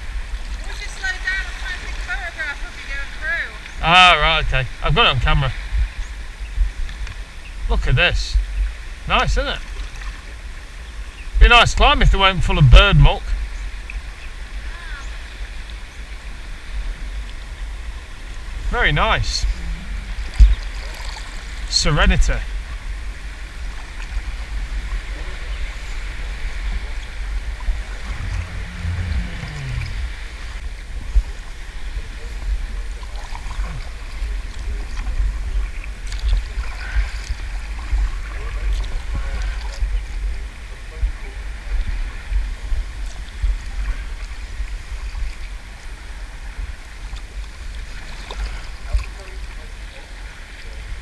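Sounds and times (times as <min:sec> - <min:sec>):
wind rumble on microphone: 0:00.0 - 0:18.8, 0:19.4 - 0:49.4
water splashing against kayak: 0:19.4 - 0:21.7, 0:22.3 - 0:51.0
water drips and splashes: 0:32.9 - 0:40.0.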